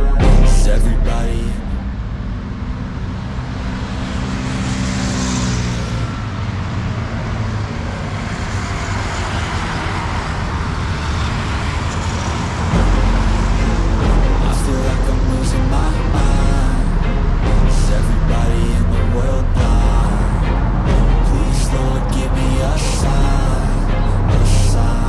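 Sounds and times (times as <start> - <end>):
background music: 0.0 - 2.1, 12.7 - 25.0
traffic tyres and engines: 0.0 - 25.0.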